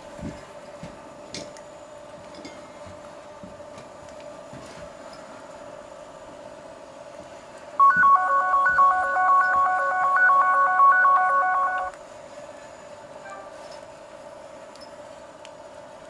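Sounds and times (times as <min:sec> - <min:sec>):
electronic phone ringtone: 0:07.8 - 0:11.9
steady hum: 0:07.8 - 0:12.0.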